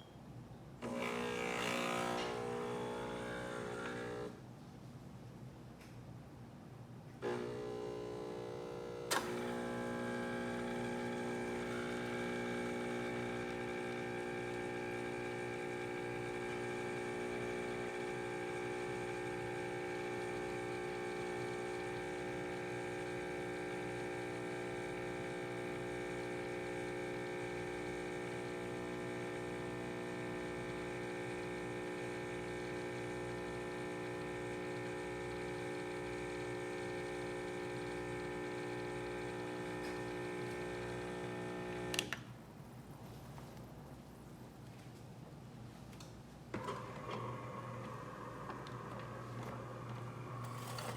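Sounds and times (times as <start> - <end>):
espresso machine humming: 0.8 - 4.4, 7.2 - 42.1, 46.5 - 50.9
espresso machine start click: 9.1 - 14.6, 39.5 - 42.2, 46.6 - 50.9.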